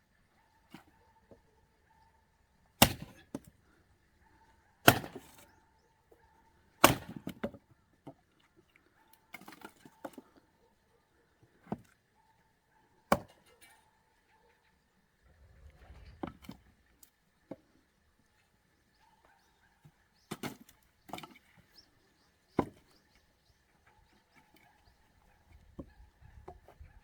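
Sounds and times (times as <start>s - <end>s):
axe chopping firewood: 2.8s - 3.5s, 4.8s - 5.4s, 6.8s - 7.6s.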